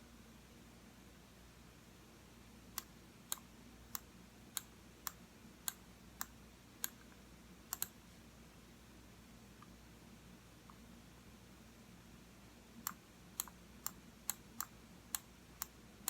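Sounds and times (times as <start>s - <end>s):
computer mouse button clicking: 7.7s - 8.0s.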